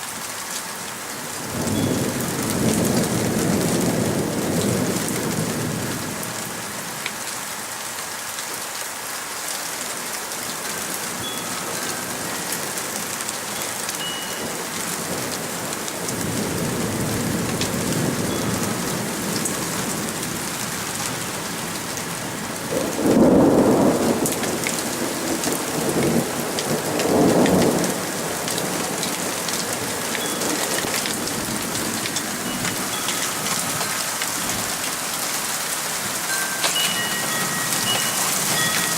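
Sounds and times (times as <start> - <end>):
heavy rain: 0.0 - 38.9
thunder rumbling: 21.7 - 35.2
loud thunderclap: 22.7 - 26.3.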